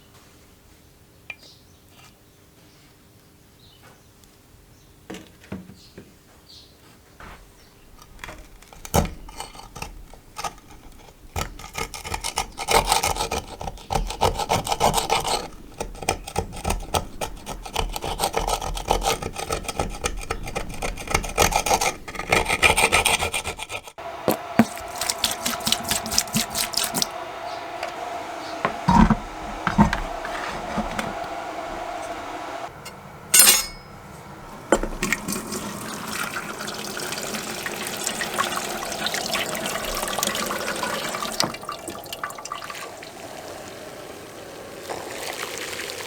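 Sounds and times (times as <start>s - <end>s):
abrasive scrubbing of engine parts: 7.8s - 35.2s
light taps and scrapes: 28.6s - 32.2s.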